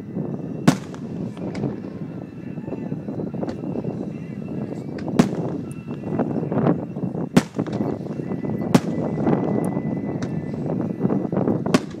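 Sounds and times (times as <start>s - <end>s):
steady din: 0.6s - 2.2s, 5.0s - 6.5s, 7.3s - 9.5s
faint fireworks pops: 0.7s - 1.8s, 4.9s - 6.0s, 7.4s - 9.4s, 11.7s - 12.0s
fireworks shells bursting: 0.7s - 1.8s, 5.0s - 6.0s, 7.4s - 9.4s.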